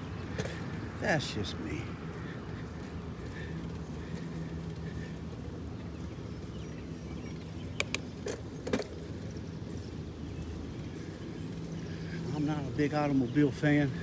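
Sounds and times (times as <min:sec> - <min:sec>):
bicycle rumbling: 0:00.0 - 0:14.0
sharp metallic clicks: 0:07.8 - 0:08.4.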